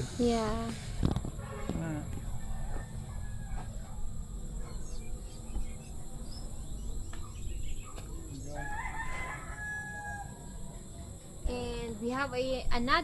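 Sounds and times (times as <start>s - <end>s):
steady low rumble: 0.0s - 8.6s
rooster crowing: 2.2s - 4.1s, 8.4s - 10.6s.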